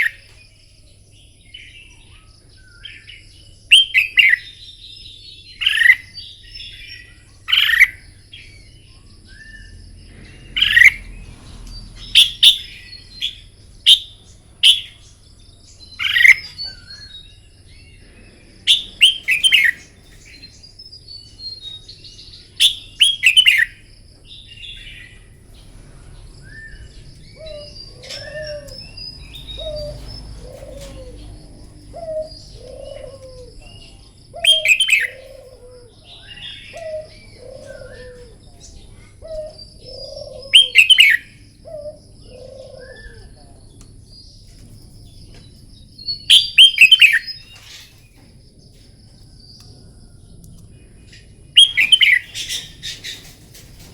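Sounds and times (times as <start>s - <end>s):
dove cooing: 10.2s - 17.2s, 22.5s - 43.7s
bulbuls warbling: 10.6s - 17.4s, 22.5s - 43.7s.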